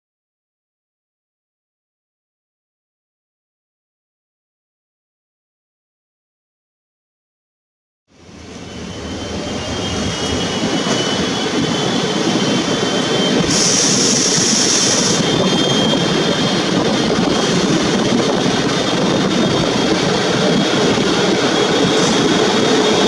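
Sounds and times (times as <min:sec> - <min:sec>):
train rumble and rush: 0:08.1 - 0:23.0
brief high hiss: 0:13.4 - 0:15.2.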